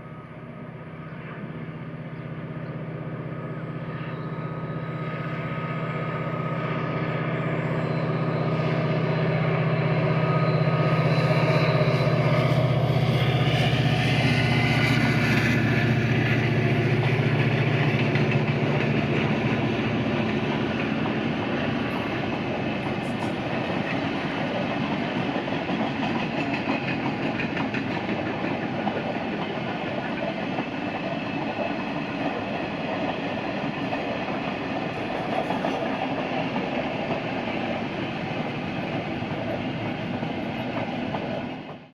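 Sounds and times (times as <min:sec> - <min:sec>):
locomotive droning: 0:00.0 - 0:41.9
train cars rattling and clattering: 0:07.2 - 0:41.9.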